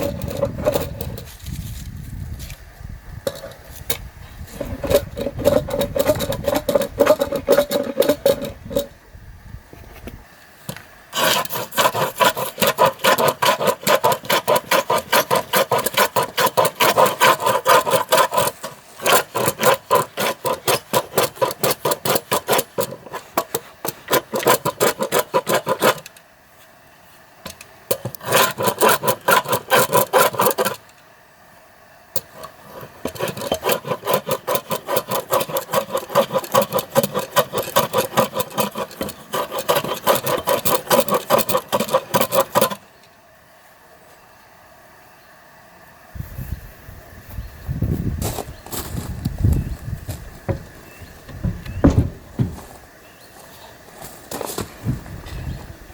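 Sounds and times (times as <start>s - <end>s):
hand tool rasping on wooden log: 0.0s - 1.3s, 4.4s - 8.9s, 11.1s - 26.2s, 27.9s - 30.8s, 32.2s - 42.8s, 50.5s - 52.7s.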